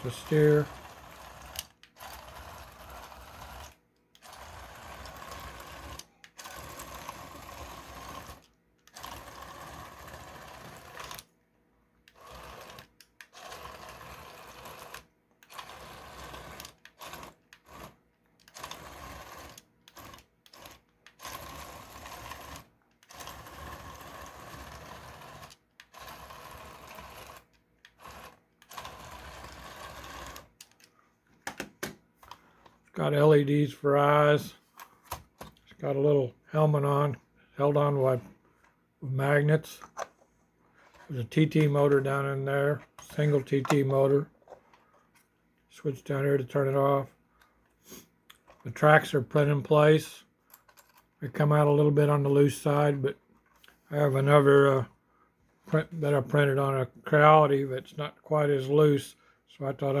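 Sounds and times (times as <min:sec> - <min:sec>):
toy motor whirring: 0:00.0 - 0:11.3, 0:12.0 - 0:30.8.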